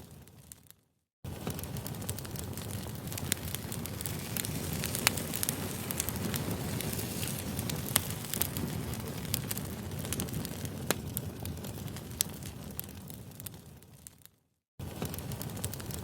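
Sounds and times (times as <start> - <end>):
low rumble of flames: 0.0 - 0.7, 1.3 - 16.0
campfire crackles and pops: 0.0 - 16.0.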